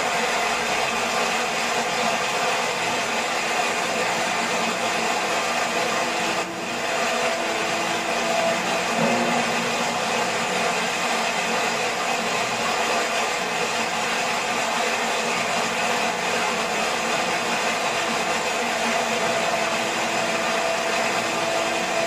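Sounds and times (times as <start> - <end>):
waterfall rushing: 3.4 - 13.6.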